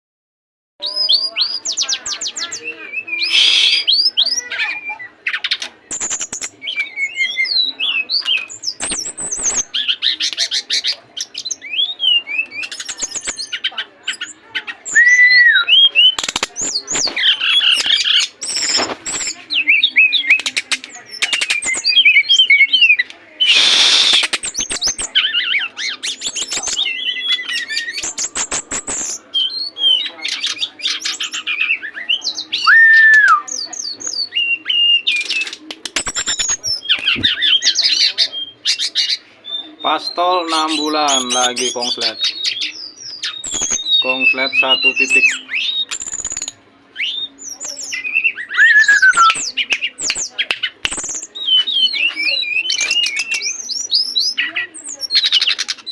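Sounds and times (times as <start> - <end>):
songbird singing: 36.5 - 55.8.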